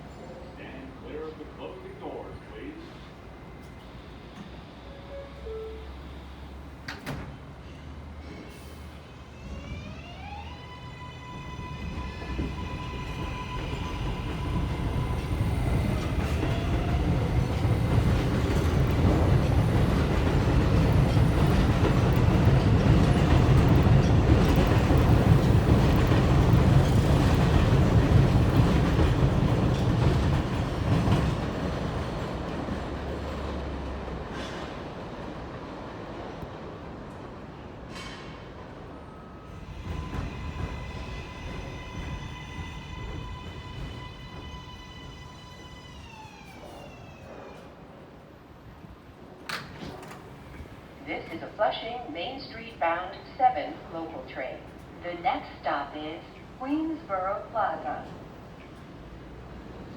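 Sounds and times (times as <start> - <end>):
train wheels rumbling on rail: 6.6 - 51.7.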